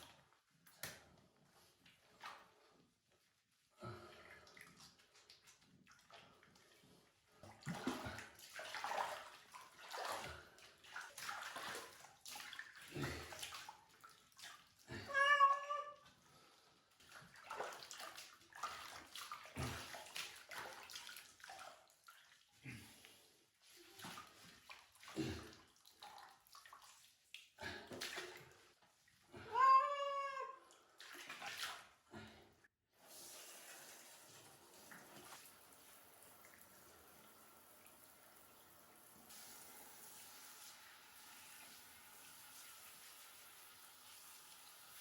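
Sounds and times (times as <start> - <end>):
water splashing: 7.6 - 15.4, 17.0 - 22.4
loud cat meow: 15.0 - 16.0, 29.5 - 30.6.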